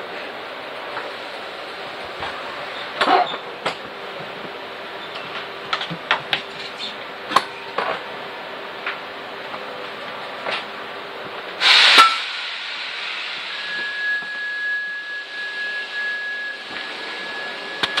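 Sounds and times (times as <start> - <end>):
train carriage background noise: 0.0 - 18.0
air hiss burst: 11.6 - 17.4
steady high tone: 11.6 - 18.0.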